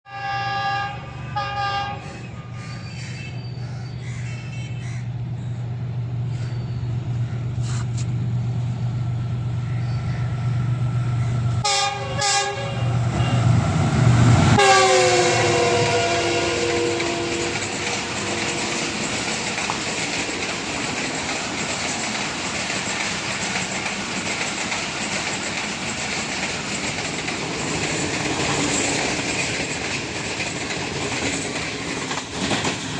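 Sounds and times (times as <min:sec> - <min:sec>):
train horn blasts: 0:00.1 - 0:02.6, 0:11.6 - 0:13.7, 0:14.5 - 0:20.7
carriages rumbling past: 0:00.1 - 0:32.9
locomotive droning: 0:00.1 - 0:32.9.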